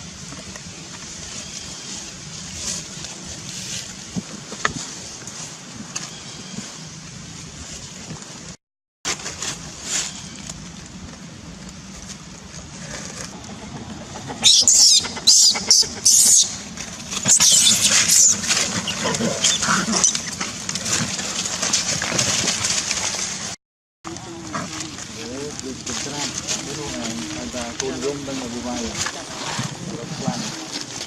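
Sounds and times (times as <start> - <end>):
background noise: 0.0 - 31.0
baby monkey screaming: 14.4 - 16.6, 17.2 - 20.3.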